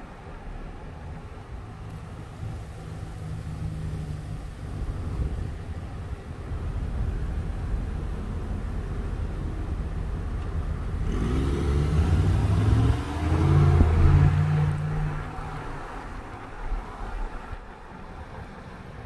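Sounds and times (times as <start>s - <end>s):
low traffic rumble: 0.0s - 19.0s
car engine accelerating: 1.8s - 16.4s.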